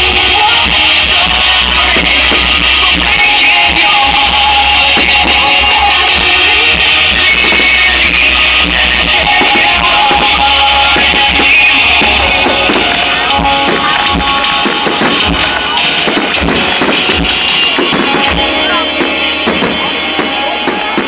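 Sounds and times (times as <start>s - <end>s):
fireworks cracking and popping: 0.0s - 21.0s
music with steady beat: 0.0s - 21.0s.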